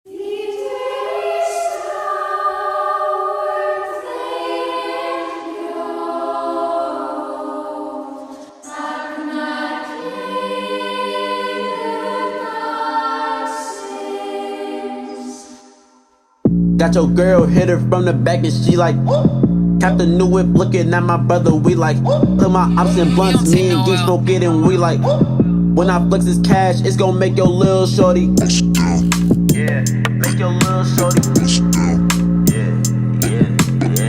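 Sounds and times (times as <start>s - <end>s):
choir singing sustained chords: 0.1s - 16.4s.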